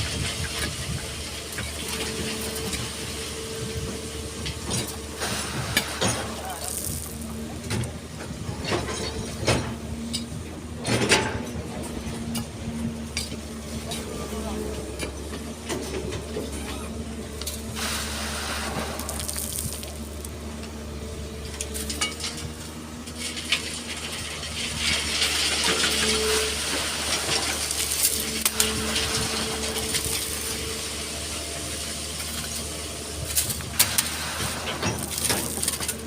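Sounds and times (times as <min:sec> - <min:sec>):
excavator engine running: 0:00.0 - 0:36.0
sand and stones pouring: 0:05.2 - 0:07.4, 0:17.5 - 0:20.4, 0:23.4 - 0:36.0
hydraulic whine: 0:25.6 - 0:36.0.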